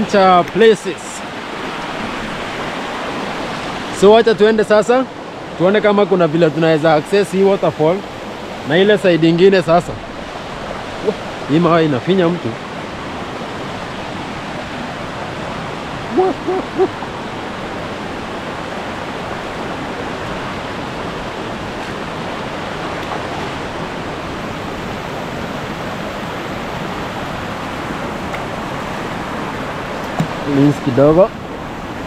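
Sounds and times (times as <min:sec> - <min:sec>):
water rushing over rocks: 0:00.0 - 0:32.0
short pitched calls: 0:16.1 - 0:17.0.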